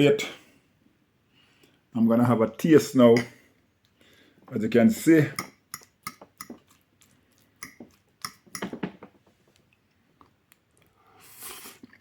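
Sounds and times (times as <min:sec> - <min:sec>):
soft breath: 0:00.3 - 0:01.9, 0:03.4 - 0:04.5, 0:10.8 - 0:11.8
person chewing: 0:05.7 - 0:08.6.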